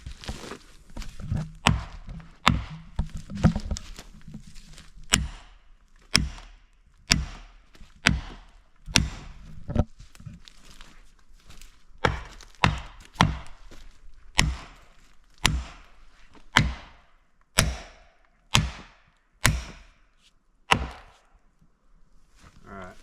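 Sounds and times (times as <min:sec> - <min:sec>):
axe striking wood: 0:01.3 - 0:03.6, 0:05.1 - 0:09.4, 0:12.0 - 0:13.6, 0:14.3 - 0:20.1, 0:20.7 - 0:21.3.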